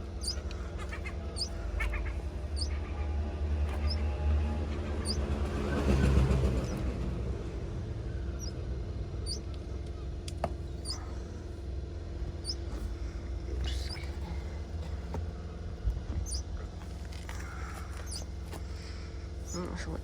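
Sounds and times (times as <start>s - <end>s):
bird chirps: 0.0s - 4.2s, 5.0s - 6.8s, 8.1s - 10.1s, 10.7s - 11.2s, 12.4s - 12.7s, 13.6s - 14.4s, 16.2s - 16.7s, 17.4s - 18.3s, 19.4s - 19.6s
vehicle engine rumble: 0.0s - 20.0s.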